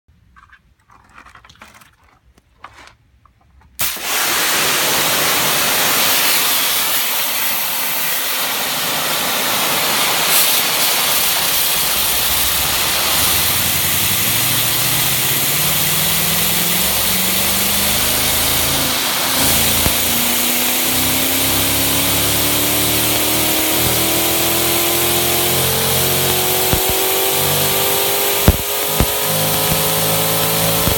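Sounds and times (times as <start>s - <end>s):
pressure washer spray hissing: 3.8s - 7.2s, 8.4s - 30.9s
spinning tyre tread tone: 11.4s - 30.9s.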